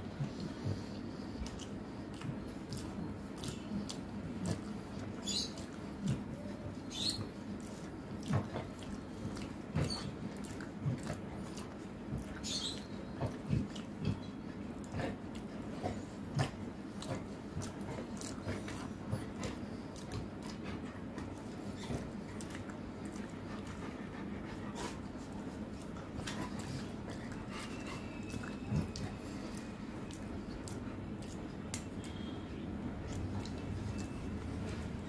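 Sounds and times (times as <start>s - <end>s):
wet chewing with lip smacks: 0.1s - 32.4s, 33.0s - 35.0s.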